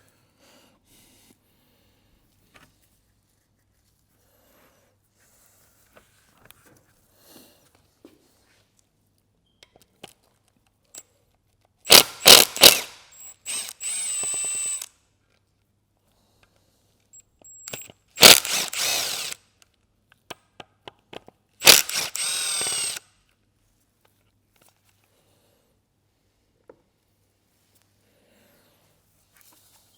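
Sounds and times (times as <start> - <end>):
power driver whining: 11.9 - 14.9, 17.6 - 19.4, 21.6 - 23.0.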